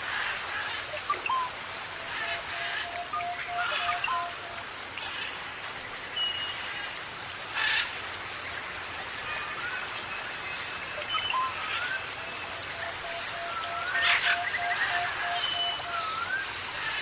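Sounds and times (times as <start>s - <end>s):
rain-like hiss: 0.0s - 17.0s
bird calls and whistles: 0.9s - 4.5s, 9.6s - 16.6s.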